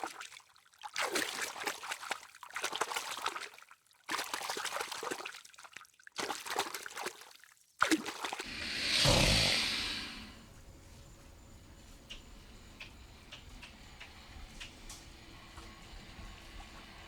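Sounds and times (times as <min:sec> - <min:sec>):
water trickling and splashing: 0:00.0 - 0:08.8.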